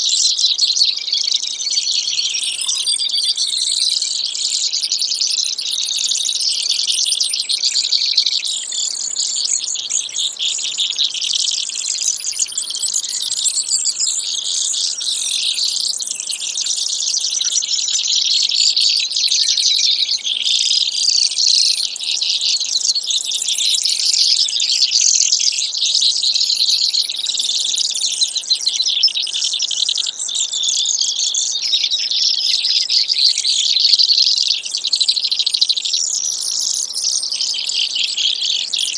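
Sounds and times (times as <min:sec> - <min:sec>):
sparrow singing trills: 0:00.0 - 0:38.9.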